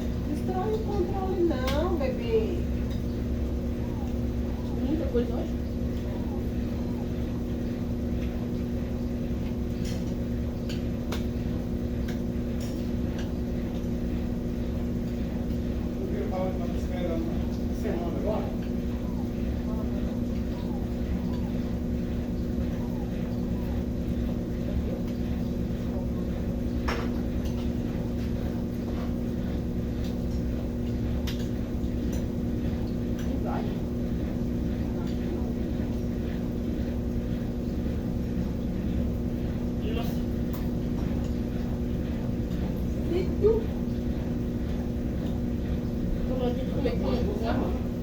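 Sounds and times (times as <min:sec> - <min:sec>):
washing machine spinning: 0:00.0 - 0:48.0.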